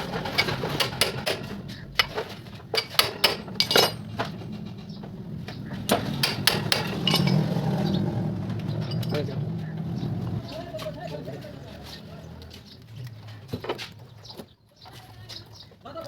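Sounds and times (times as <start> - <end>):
metal tools clinking on engine: 0.0 - 10.7.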